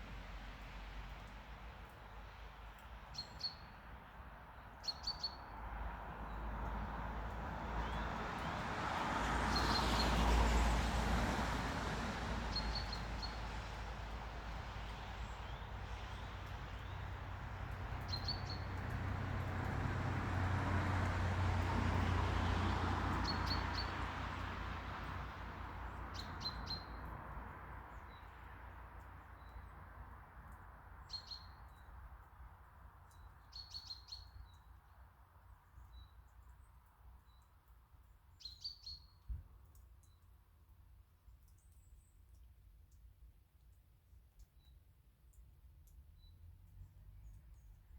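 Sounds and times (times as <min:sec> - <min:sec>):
small birds chirping: 0:18.0 - 0:18.8.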